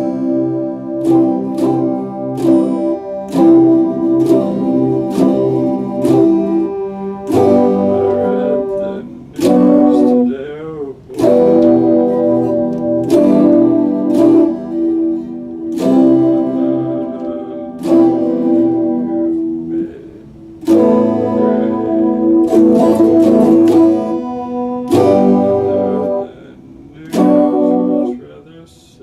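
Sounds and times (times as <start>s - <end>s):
electric guitar strumming chords: 0.0s - 29.0s.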